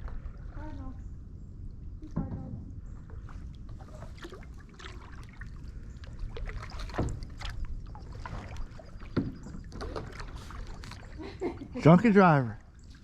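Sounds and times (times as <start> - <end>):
paddle strokes in water: 0.0 - 0.8, 3.0 - 13.0
paddle knocks: 6.4 - 10.9.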